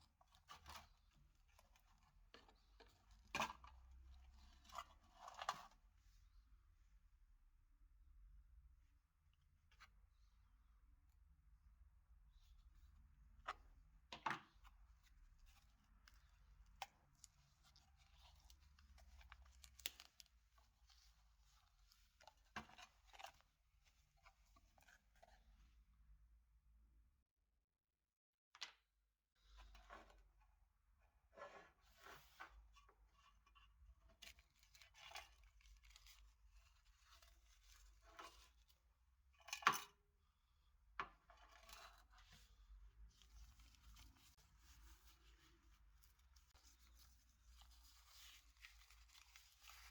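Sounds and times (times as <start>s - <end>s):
scraping and rustling handling: 41.4s - 49.9s.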